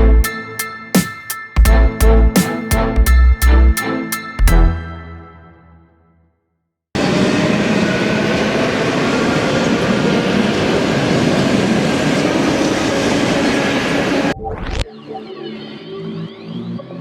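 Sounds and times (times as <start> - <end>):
electric train running on rails: 7.0 - 14.4.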